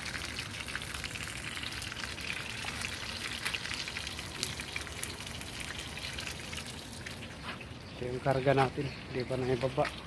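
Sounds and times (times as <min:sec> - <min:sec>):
fish frying in hot oil: 0:00.0 - 0:07.4.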